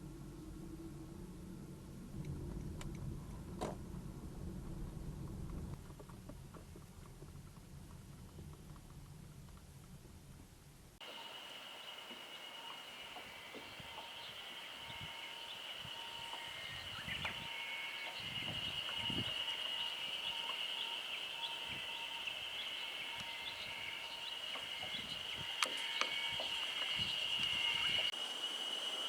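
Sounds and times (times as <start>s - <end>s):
high-pitched animal chorus: 11.0s - 28.1s.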